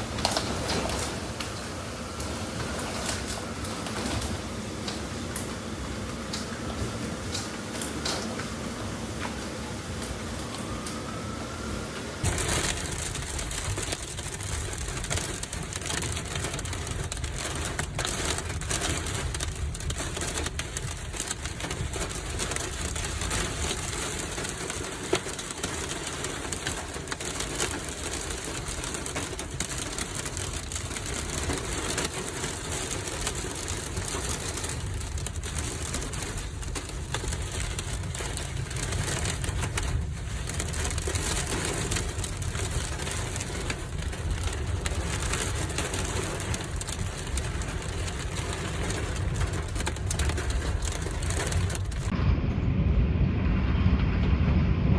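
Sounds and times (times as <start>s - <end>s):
storm wind on microphone: 12.2s - 54.9s.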